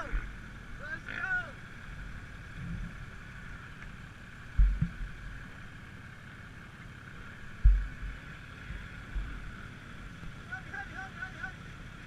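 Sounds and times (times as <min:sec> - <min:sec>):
heavy low thumps: 0:04.5 - 0:05.1.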